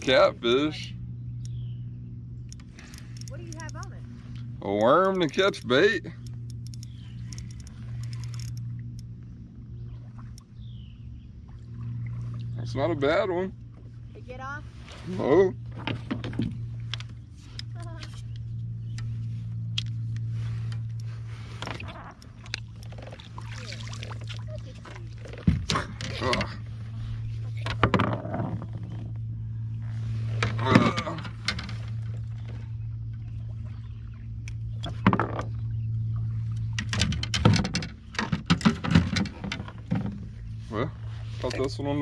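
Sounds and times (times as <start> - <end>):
low motor-like hum: 0.0 - 42.0
knocks and thumps on kayak: 15.6 - 17.1, 22.9 - 26.6, 27.4 - 29.1, 34.8 - 35.6, 36.6 - 40.5.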